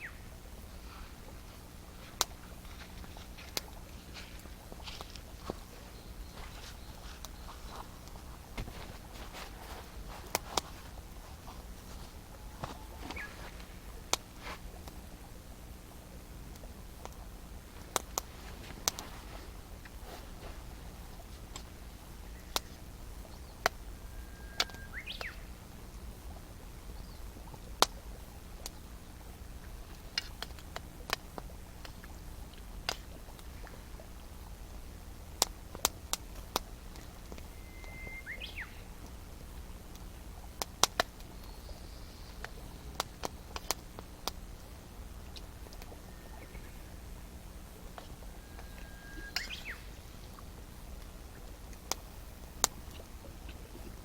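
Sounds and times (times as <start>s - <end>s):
campfire crackling and popping: 0.0s - 23.8s, 26.1s - 37.5s, 38.2s - 41.5s, 42.4s - 46.1s, 47.1s - 54.0s
bird whistled calls: 12.4s - 13.5s, 24.0s - 25.5s, 37.4s - 38.9s, 46.0s - 47.0s, 48.2s - 50.1s.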